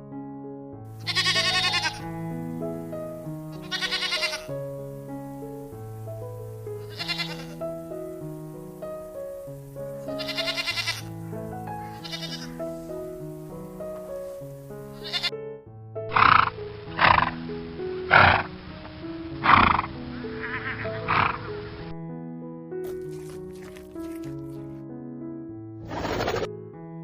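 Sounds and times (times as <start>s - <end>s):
background music with stepping notes: 0.9s - 15.3s, 16.1s - 22.0s
farm animal calls: 1.0s - 2.0s, 3.5s - 4.5s, 6.8s - 7.9s, 10.0s - 13.2s, 13.9s - 15.3s, 16.1s - 17.4s, 18.0s - 18.5s, 19.4s - 21.9s, 22.9s - 24.7s.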